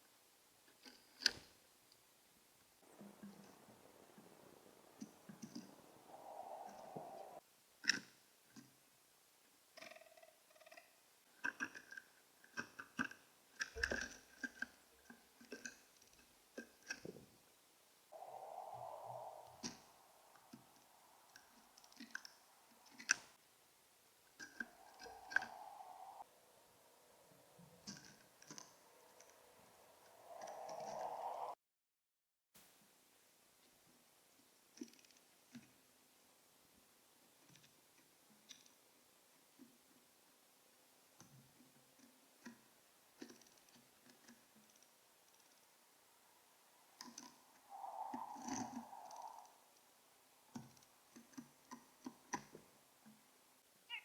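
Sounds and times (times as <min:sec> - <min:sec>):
steady hiss: 0:01.2 - 0:09.8, 0:14.7 - 0:31.6
bird call: 0:02.9 - 0:07.4, 0:18.2 - 0:23.1, 0:24.4 - 0:28.0, 0:47.6 - 0:49.7.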